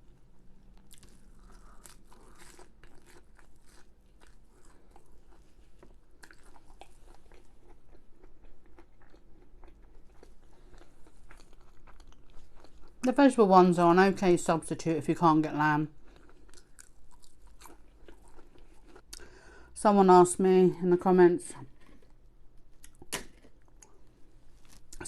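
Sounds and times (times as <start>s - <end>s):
chewing crunchy food: 0.1s - 13.1s, 15.9s - 19.4s, 21.6s - 25.0s.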